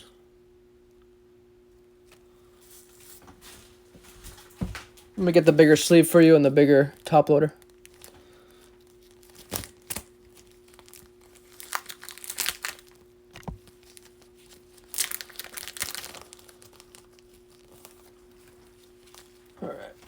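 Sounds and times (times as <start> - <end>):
plastic sleeve crinkling: 4.4 - 20.0.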